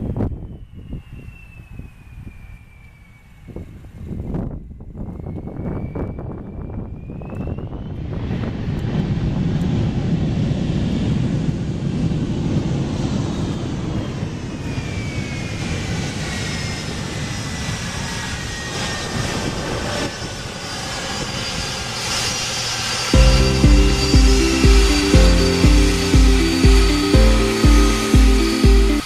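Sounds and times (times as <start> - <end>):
jet engine whine falling in pitch: 0.0 - 29.0
jet engines rumbling: 6.8 - 29.0.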